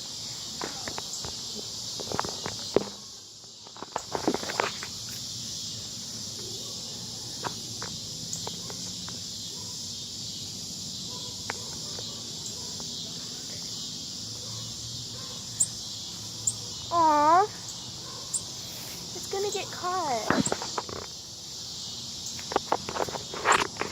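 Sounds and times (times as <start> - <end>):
insects buzzing: 0.0 - 23.9.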